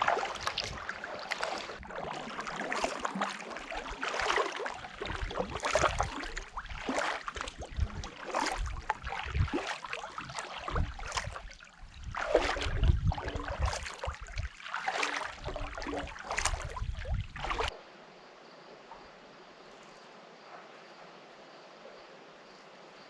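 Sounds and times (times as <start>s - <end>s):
kayak paddle strokes splashing: 0.0s - 17.8s.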